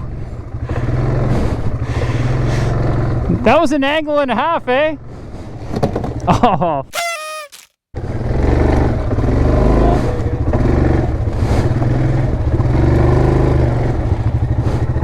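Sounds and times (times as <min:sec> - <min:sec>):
atv engine running under load: 0:00.0 - 0:03.6, 0:08.0 - 0:15.0.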